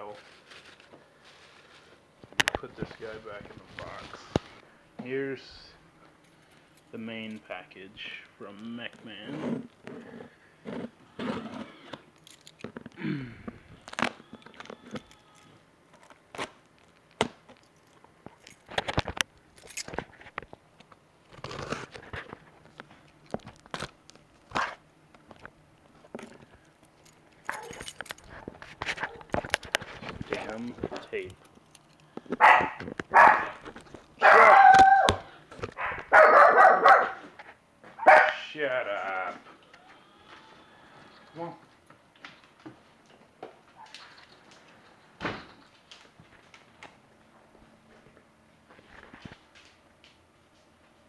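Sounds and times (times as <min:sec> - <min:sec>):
packing tape clicks: 0:13.8 - 0:17.6
dog barking: 0:32.4 - 0:33.6, 0:34.2 - 0:35.2, 0:35.8 - 0:37.3, 0:38.0 - 0:38.4.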